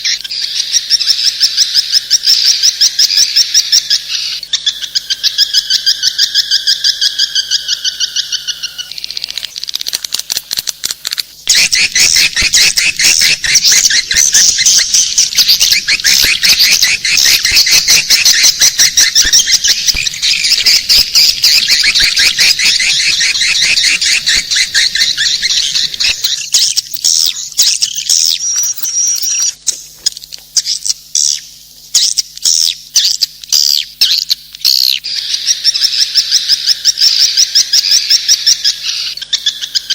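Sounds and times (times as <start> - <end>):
swiftlets twittering: 11.4 - 28.9.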